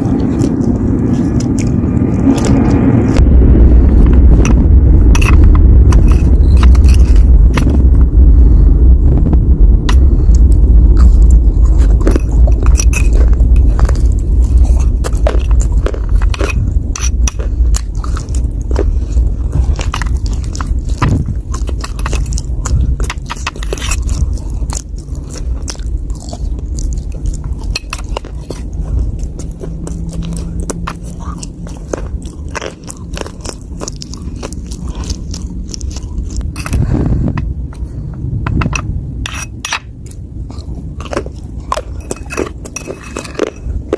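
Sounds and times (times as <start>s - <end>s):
chewing dry earth crunches: 0.0s - 43.9s
heavy low rumble: 0.0s - 43.9s.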